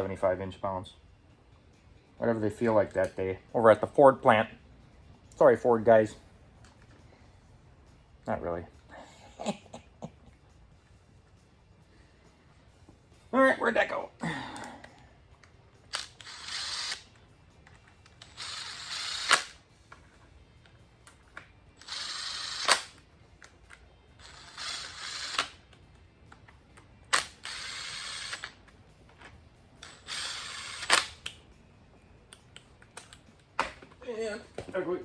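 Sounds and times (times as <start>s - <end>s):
power driver running bolts: 18.2s - 19.6s, 21.8s - 23.0s, 24.2s - 25.6s, 29.8s - 31.3s.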